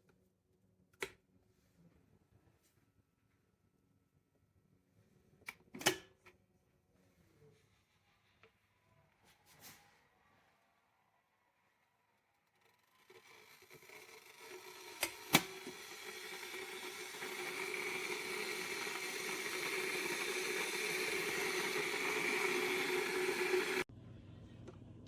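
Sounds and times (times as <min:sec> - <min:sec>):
electric kettle hissing: 0:11.9 - 0:23.9.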